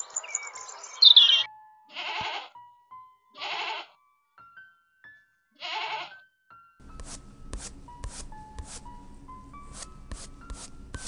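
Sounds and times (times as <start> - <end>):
robin singing: 0.0 - 1.5
soft background music: 0.4 - 11.0
goat bleating: 1.9 - 2.6, 3.4 - 4.0, 5.6 - 6.2.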